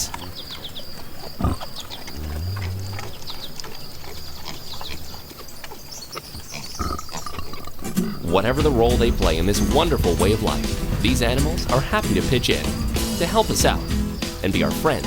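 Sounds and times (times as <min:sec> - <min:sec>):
sow grunting: 0:00.0 - 0:05.3.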